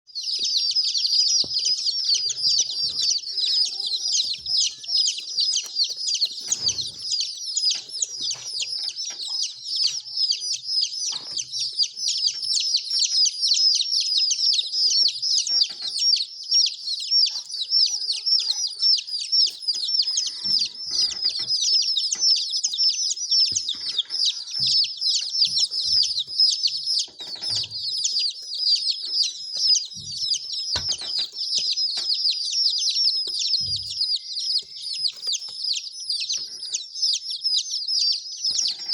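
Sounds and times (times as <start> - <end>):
baby chicks peeping: 0.0 - 38.9.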